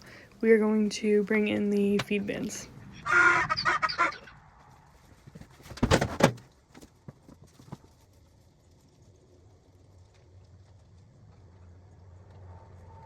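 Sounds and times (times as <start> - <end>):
loud knocks and clatter: 5.4 - 6.4.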